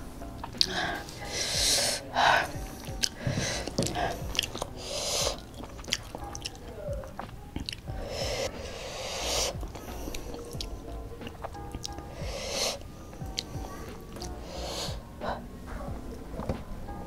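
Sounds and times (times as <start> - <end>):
chewing rice and squid: 0.4 - 15.4
breathy hisses: 0.6 - 15.8
wet mouth clicks and smacks: 5.6 - 7.8.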